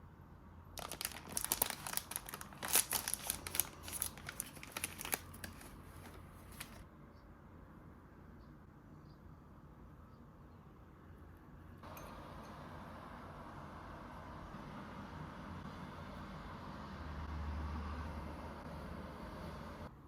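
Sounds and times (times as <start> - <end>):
snack wrapper crinkling: 0.8 - 6.8.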